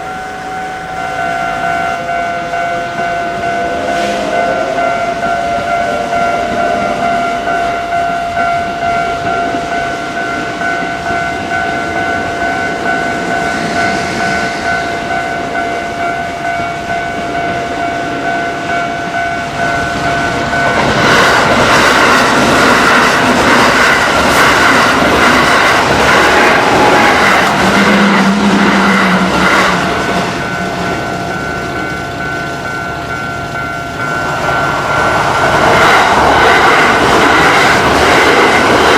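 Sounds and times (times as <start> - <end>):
level-crossing warning bell ringing: 0.0 - 38.9
train rumble: 0.0 - 38.9
train wheels clattering over rail joints: 20.3 - 30.8.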